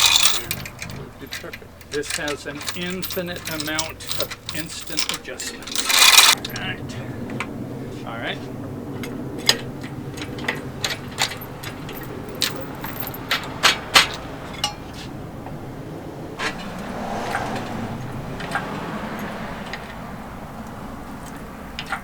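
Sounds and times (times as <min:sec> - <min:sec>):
metal chain clinking: 0:00.0 - 0:06.8, 0:09.0 - 0:15.0.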